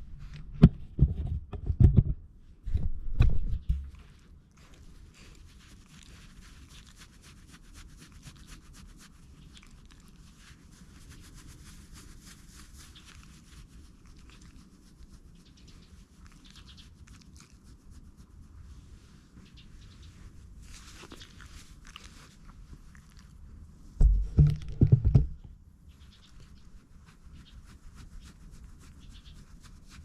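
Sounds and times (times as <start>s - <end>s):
hands rubbing dog's coat: 3.8s - 23.4s, 26.1s - 30.0s.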